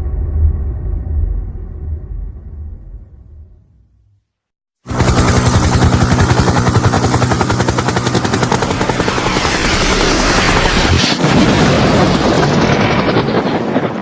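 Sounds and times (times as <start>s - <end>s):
helicopter rotor blades chopping: 4.8s - 14.0s
engine and turbine drone: 4.9s - 13.8s.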